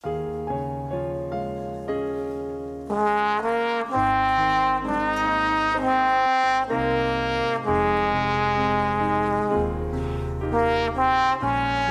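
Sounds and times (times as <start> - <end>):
brass ensemble playing chords: 2.9 - 11.9.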